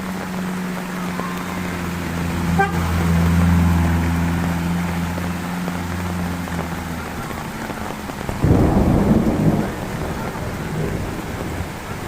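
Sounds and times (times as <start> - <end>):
heavy rain: 0.0 - 12.0
thunder clap rumbling: 5.9 - 12.0.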